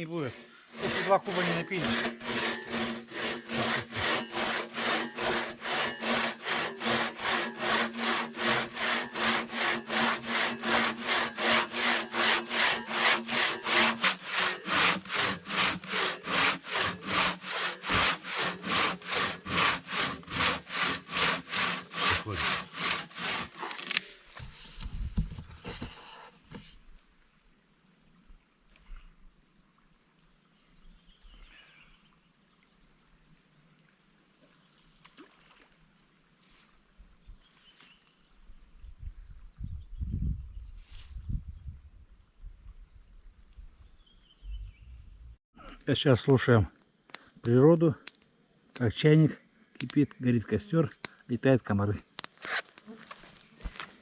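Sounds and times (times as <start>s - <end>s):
hand saw cutting firewood: 0.0s - 24.6s, 25.6s - 26.6s.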